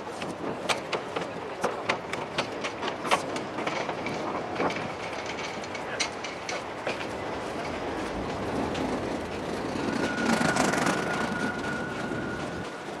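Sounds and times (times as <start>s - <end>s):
train running on rails: 0.0s - 13.0s
high squeal: 9.8s - 13.0s.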